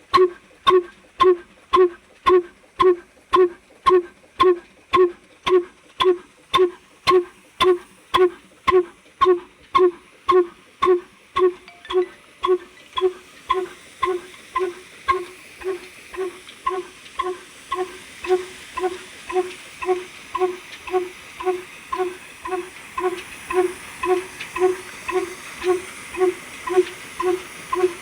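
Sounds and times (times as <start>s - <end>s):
old diesel engine running: 0.0s - 28.0s
faint hiss: 6.1s - 28.0s.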